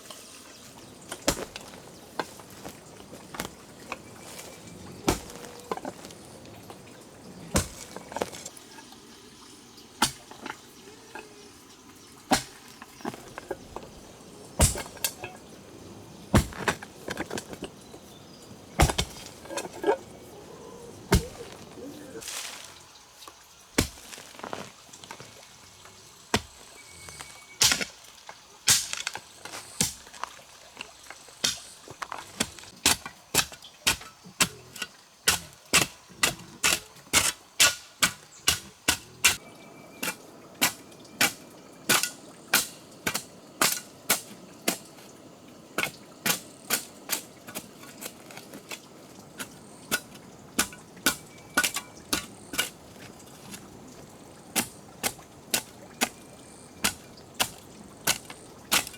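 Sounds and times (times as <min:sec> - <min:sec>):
tool striking hard material: 0:05.1 - 0:06.1, 0:14.6 - 0:15.3, 0:18.8 - 0:19.6.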